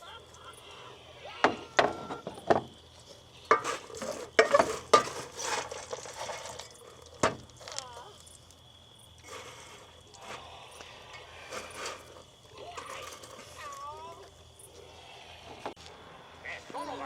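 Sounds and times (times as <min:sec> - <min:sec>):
dishes clinking and knocking: 0:01.4 - 0:02.7, 0:03.5 - 0:07.4
dishes rattling and scraping: 0:03.4 - 0:07.8, 0:09.2 - 0:13.8.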